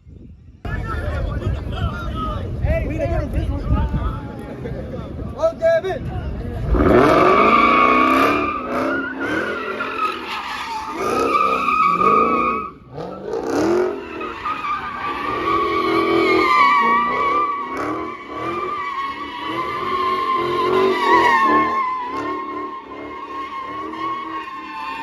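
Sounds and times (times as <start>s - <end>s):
car tires screeching: 5.4s - 25.0s
car engine revving: 6.4s - 25.0s.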